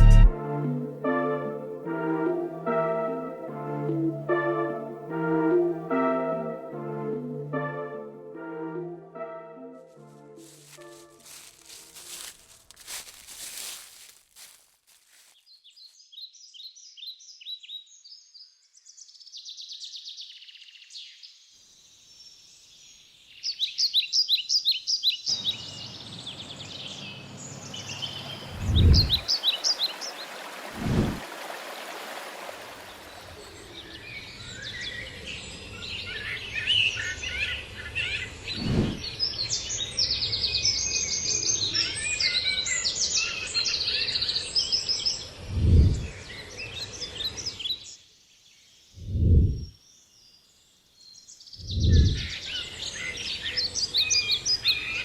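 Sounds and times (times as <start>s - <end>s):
small birds chirping and singing: 10.4s - 30.4s, 32.8s - 55.0s.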